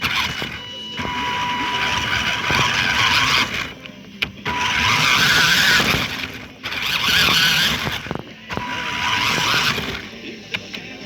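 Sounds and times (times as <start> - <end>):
toy car electric motor whining: 0.0 - 11.0.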